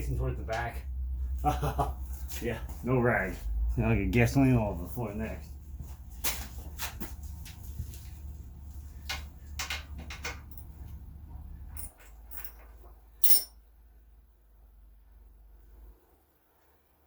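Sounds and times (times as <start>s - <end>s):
steady low hum: 0.0s - 16.0s
tools and metal parts clicking: 9.6s - 10.8s, 11.7s - 13.5s.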